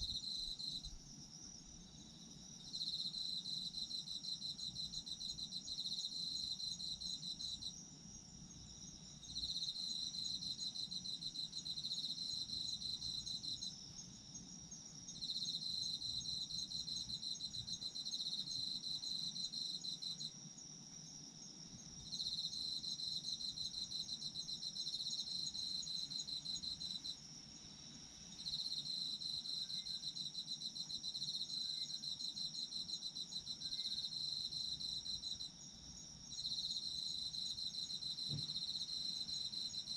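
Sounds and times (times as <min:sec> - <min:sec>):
cricket pulsing trills: 0:00.0 - 0:39.9
crickets steady high trill: 0:21.4 - 0:39.9.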